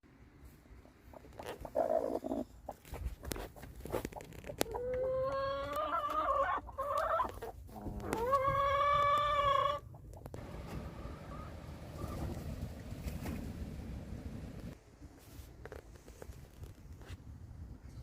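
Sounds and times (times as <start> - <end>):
small clicks and rustles: 15.2 - 17.2.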